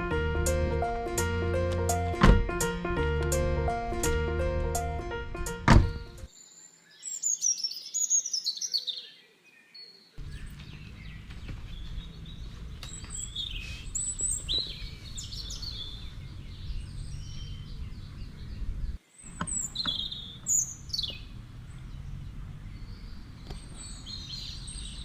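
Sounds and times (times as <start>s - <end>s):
birds chirping and calling: 5.7s - 25.0s
low background rumble: 10.2s - 19.0s.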